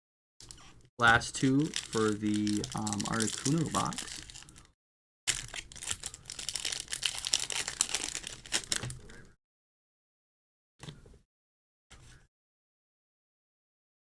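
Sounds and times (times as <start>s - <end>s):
foil wrapper crinkling and tearing: 0.5s - 9.3s.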